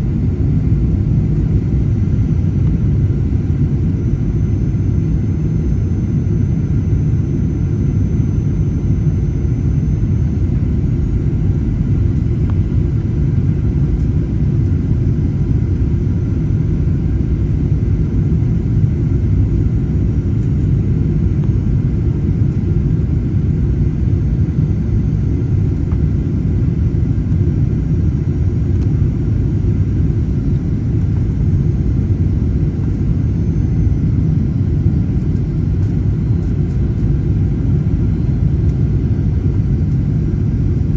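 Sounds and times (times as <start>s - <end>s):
airplane cabin engine rumble: 0.0s - 40.9s.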